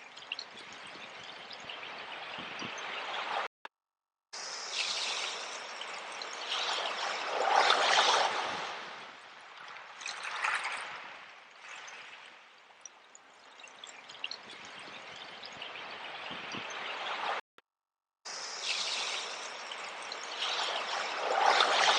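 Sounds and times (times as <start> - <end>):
sea waves washing in: 4.4 - 12.5, 18.4 - 21.9.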